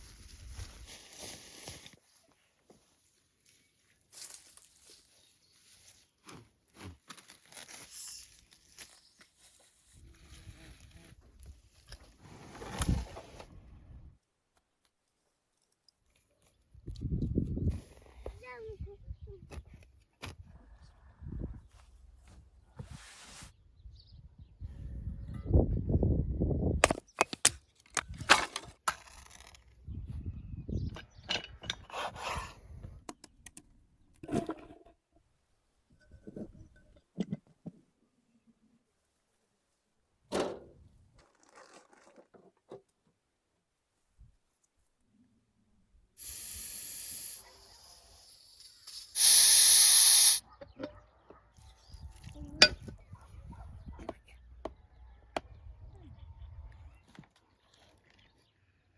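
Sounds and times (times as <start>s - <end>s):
hissing bursts: 46.2s - 50.4s.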